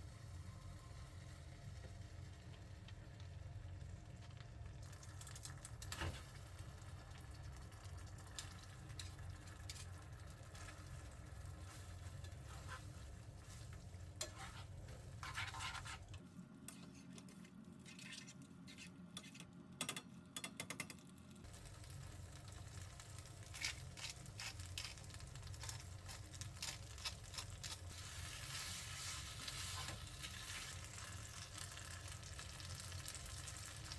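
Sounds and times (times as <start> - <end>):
utensil stirring and scraping: 11.6 - 19.5.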